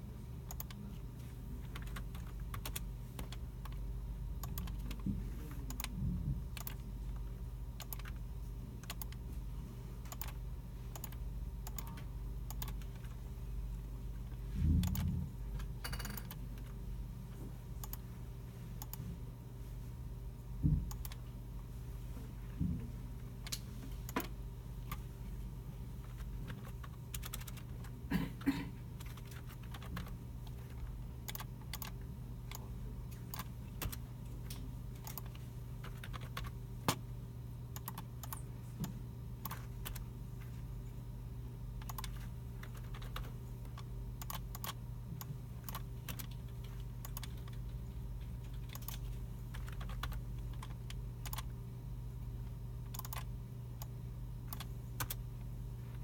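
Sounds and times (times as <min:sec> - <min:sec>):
steady low hum: 0:00.0 - 0:56.0
keyboard typing: 0:00.4 - 0:01.0, 0:01.6 - 0:03.8, 0:04.4 - 0:05.1, 0:05.7 - 0:09.2, 0:10.0 - 0:13.2, 0:14.2 - 0:16.8, 0:17.8 - 0:18.1, 0:20.7 - 0:21.2, 0:26.0 - 0:27.9, 0:29.0 - 0:37.0, 0:37.7 - 0:40.1, 0:41.8 - 0:51.6, 0:52.8 - 0:55.2
computer mice clicking: 0:00.5 - 0:00.9, 0:01.6 - 0:03.8, 0:04.4 - 0:08.2, 0:08.8 - 0:09.2, 0:10.0 - 0:13.2, 0:17.8 - 0:18.1, 0:20.9 - 0:21.2, 0:26.0 - 0:27.9, 0:29.0 - 0:37.0, 0:37.8 - 0:40.6, 0:41.8 - 0:51.6, 0:52.9 - 0:55.2.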